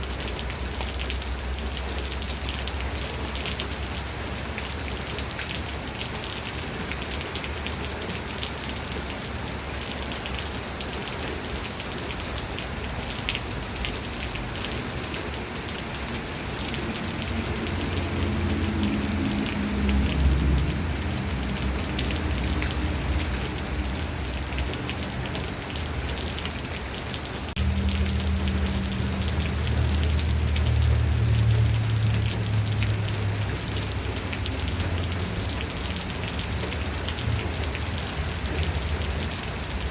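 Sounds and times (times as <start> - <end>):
steady rain pattering: 0.0 - 39.9
low rumble: 27.6 - 35.5.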